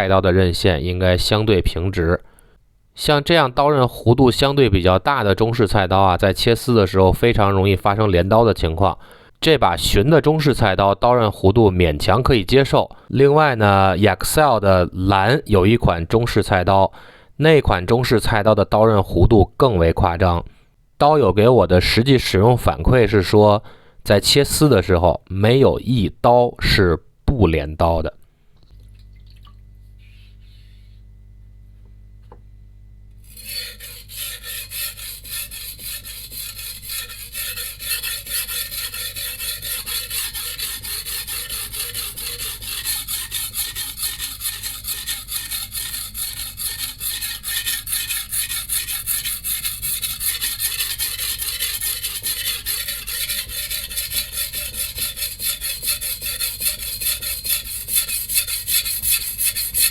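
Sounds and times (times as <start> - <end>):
low steady hum: 28.2 - 59.9
cleaver grinding on whetstone: 33.2 - 59.9.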